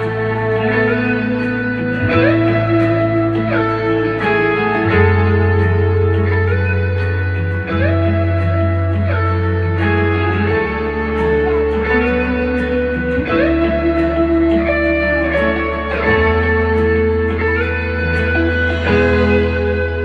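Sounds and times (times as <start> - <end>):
guitar playing sustained chords: 0.0 - 20.0
steady bass line: 0.0 - 20.0.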